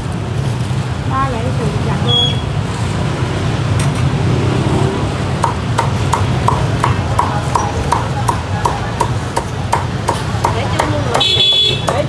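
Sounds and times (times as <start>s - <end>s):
low traffic rumble: 0.0s - 12.0s
cleaver chopping on wooden block: 5.4s - 12.0s.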